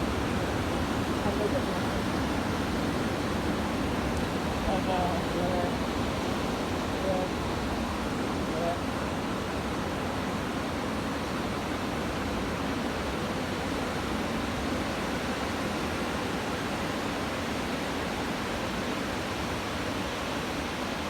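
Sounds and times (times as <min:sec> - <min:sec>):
ocean waves breaking: 0:00.0 - 0:11.0.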